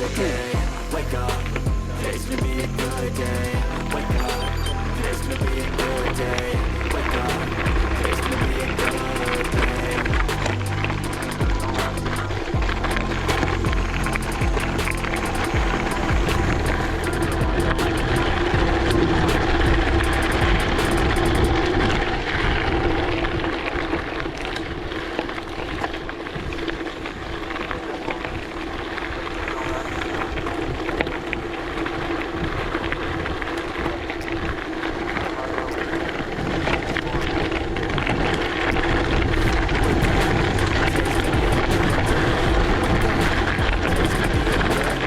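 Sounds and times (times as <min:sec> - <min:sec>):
steady hum: 0:00.0 - 0:21.6, 0:38.7 - 0:45.0.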